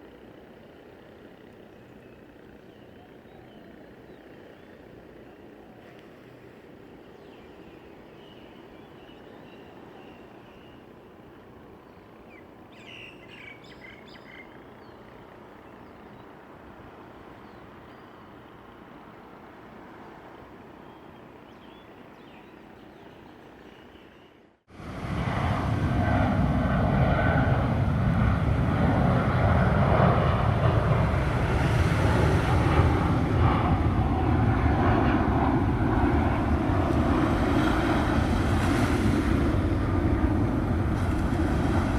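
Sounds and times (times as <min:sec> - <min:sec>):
bird chirps: 0:11.8 - 0:16.3
jet airliner roaring overhead: 0:24.7 - 0:41.9.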